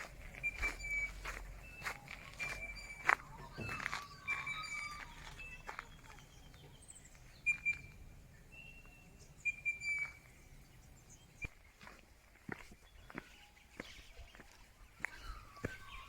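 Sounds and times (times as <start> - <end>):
birds whistling: 0.0 - 16.0.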